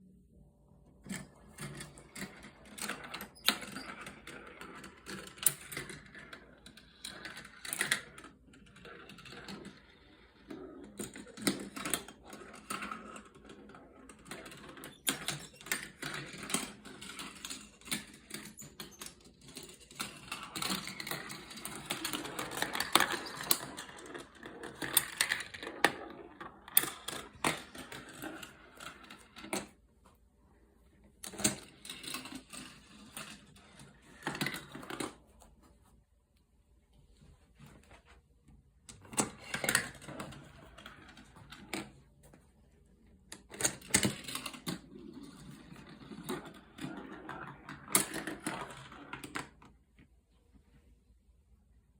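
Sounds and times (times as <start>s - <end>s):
marbles clicking against track: 1.1s - 29.6s, 43.3s - 49.6s
marbles rolling on plastic track: 1.1s - 29.8s, 31.2s - 35.2s, 38.9s - 42.0s, 43.3s - 49.8s.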